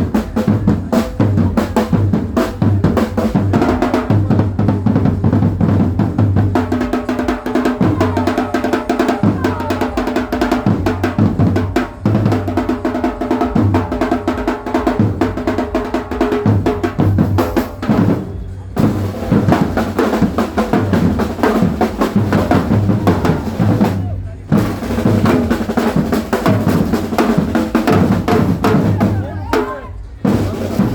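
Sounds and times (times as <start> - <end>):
bass drum and snare drumming: 0.0 - 30.9.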